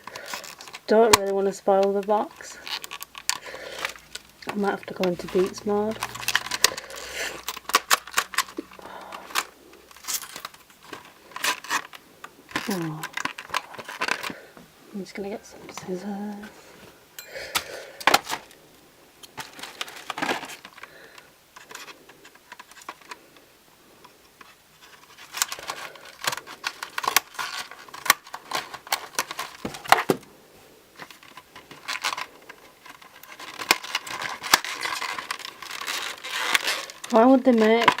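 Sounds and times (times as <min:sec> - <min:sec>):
clicks and scratches of box opening: 0:02.2 - 0:14.4, 0:24.4 - 0:30.2, 0:31.0 - 0:38.0.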